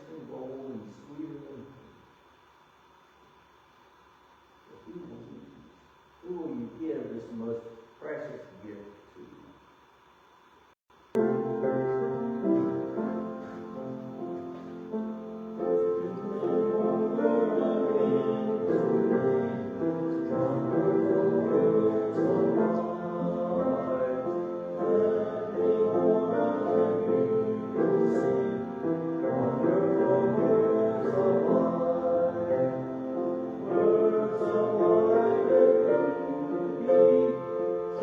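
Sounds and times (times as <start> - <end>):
piano chords: 11.2 - 38.0
voices singing a hymn: 11.6 - 38.0.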